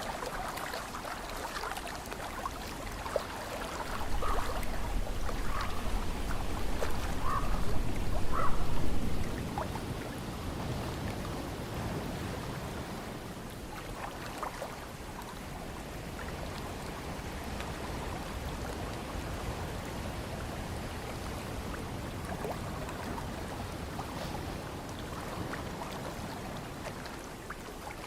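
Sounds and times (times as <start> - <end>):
small splashes and drips: 0.0 - 10.1, 13.6 - 19.8, 22.2 - 28.0
ocean water washing: 0.0 - 28.0.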